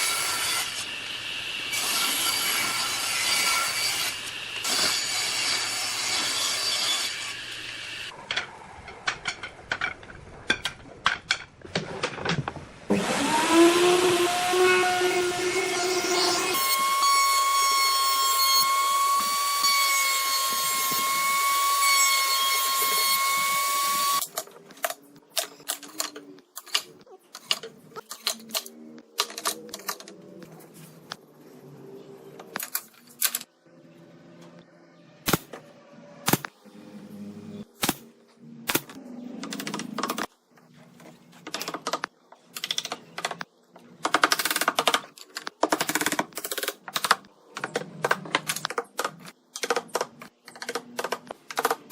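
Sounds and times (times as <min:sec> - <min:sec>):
clicks and knocks of wood and tools: 0:24.2 - 0:31.2, 0:38.8 - 0:51.9.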